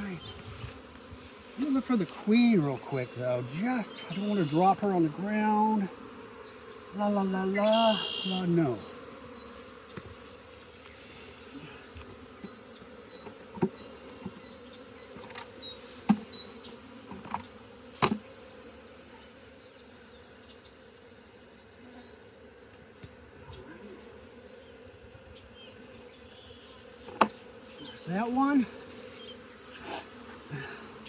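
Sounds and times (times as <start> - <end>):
bees buzzing: 0.0 - 31.0
hive frames knocking: 27.0 - 27.4.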